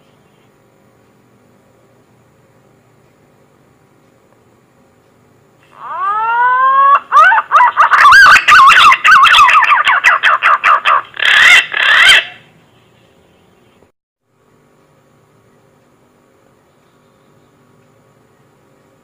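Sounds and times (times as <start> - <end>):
pigeon whistling call: 5.8 - 12.4.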